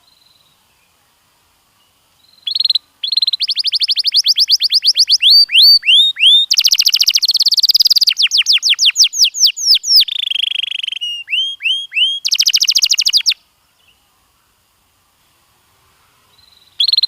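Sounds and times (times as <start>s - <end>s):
canary singing: 2.2s - 13.4s, 16.4s - 17.0s.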